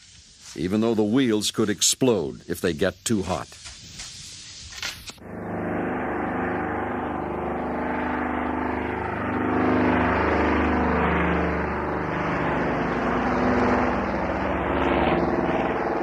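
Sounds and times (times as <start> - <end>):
aircraft engines droning: 4.8 - 16.0.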